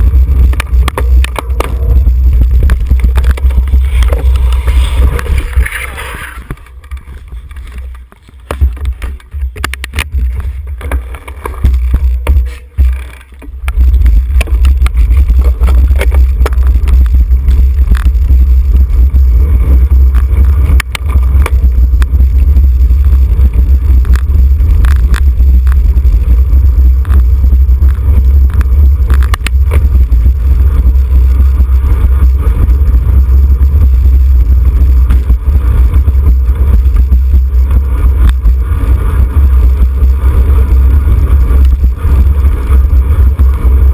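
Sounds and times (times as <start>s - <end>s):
wind buffeting microphone: 11.6s - 43.9s.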